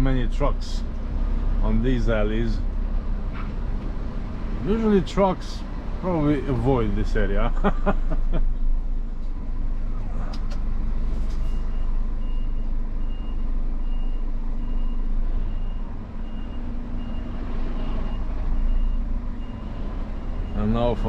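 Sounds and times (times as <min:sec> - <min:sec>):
truck engine running: 0:00.0 - 0:21.0
truck reversing alarm beeping: 0:11.4 - 0:21.0.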